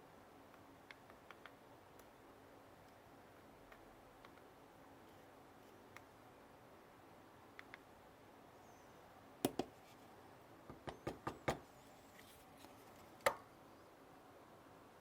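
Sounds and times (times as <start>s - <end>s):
sharp knocks and clicks: 10.7s - 11.6s.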